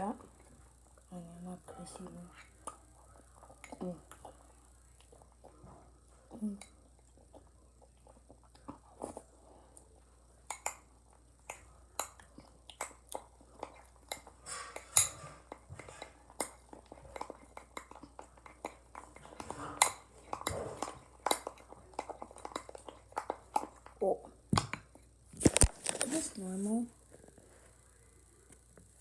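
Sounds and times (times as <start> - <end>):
chewing: 0.2 - 26.2
spoon scraping a dish: 13.6 - 23.7.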